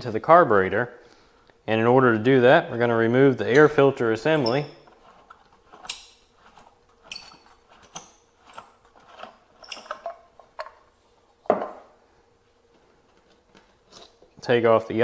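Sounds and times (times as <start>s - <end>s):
squeaky rubbing of parts: 2.8s - 10.1s.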